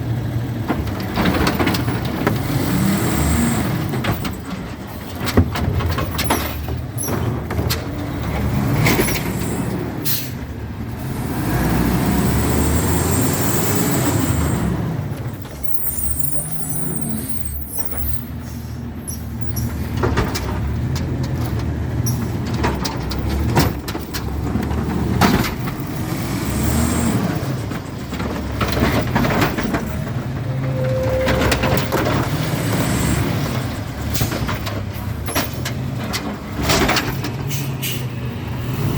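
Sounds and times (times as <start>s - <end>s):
diesel engine revving: 0.0s - 5.3s, 6.9s - 38.9s
sharp knocks and clanks: 3.8s - 9.6s, 19.7s - 38.1s.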